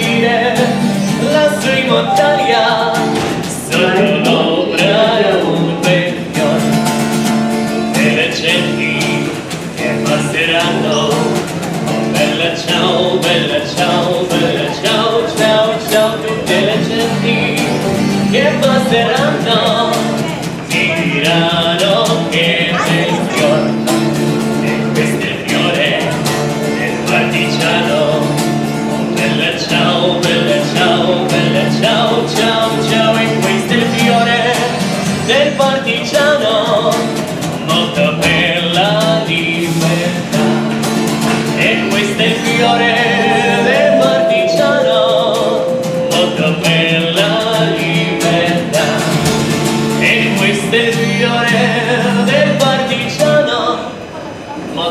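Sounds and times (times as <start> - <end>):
person singing: 0.0 - 6.7, 41.6 - 49.1
instrumental accompaniment: 1.9 - 4.0, 42.4 - 47.4.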